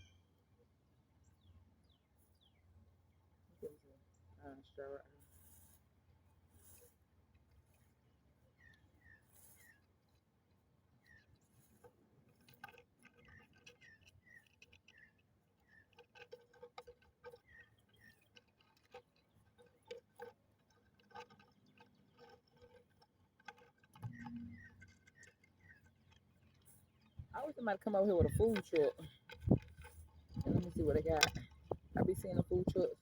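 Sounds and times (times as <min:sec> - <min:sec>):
small birds chirping: 0:07.8 - 0:20.8, 0:21.4 - 0:33.0.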